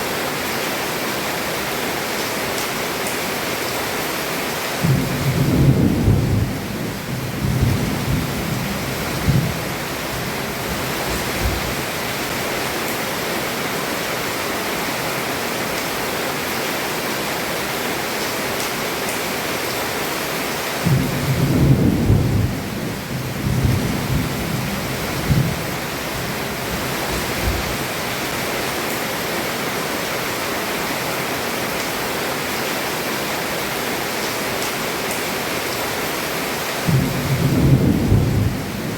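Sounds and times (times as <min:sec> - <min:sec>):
heavy rain on a roof: 0:00.0 - 0:38.9
thunder rumbling: 0:04.8 - 0:11.9, 0:20.8 - 0:27.9, 0:36.9 - 0:38.9.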